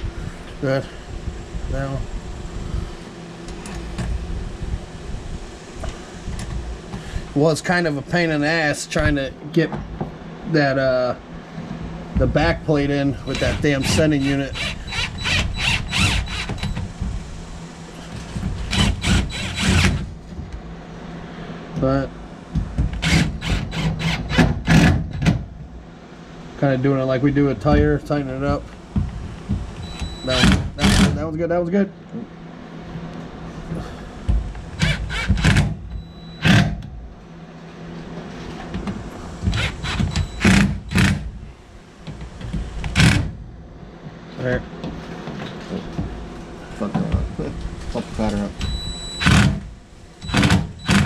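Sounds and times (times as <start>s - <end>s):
cordless power driver bursts: 13.2s - 16.8s, 39.5s - 41.3s.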